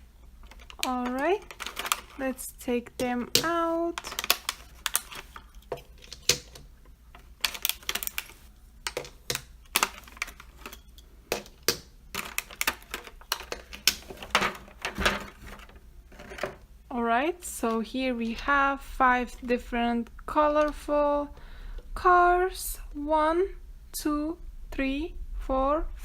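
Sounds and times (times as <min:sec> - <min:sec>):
plastic packaging handled: 0:00.4 - 0:16.4.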